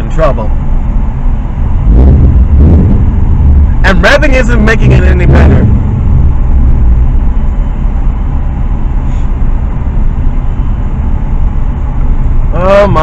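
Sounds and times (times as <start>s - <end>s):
car engines rumbling: 0.0s - 13.0s.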